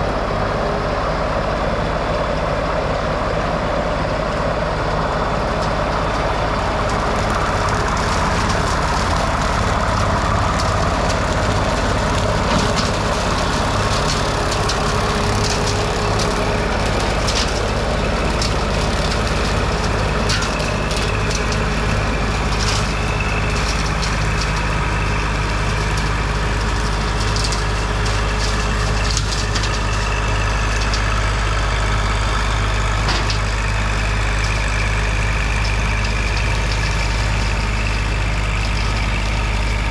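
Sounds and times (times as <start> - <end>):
tractor diesel engine running: 0.0 - 39.9
sharp cracks: 6.6 - 31.4.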